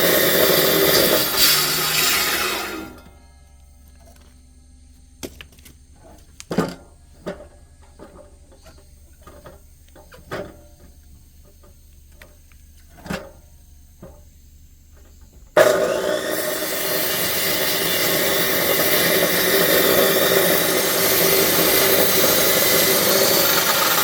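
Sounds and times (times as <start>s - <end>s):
low steady hum: 2.4s - 15.6s.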